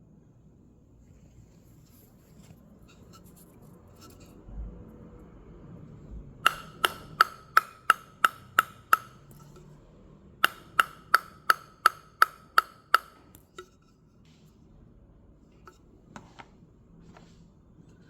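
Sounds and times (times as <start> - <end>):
table tennis ball bouncing on racket: 6.4 - 9.7, 10.4 - 13.7.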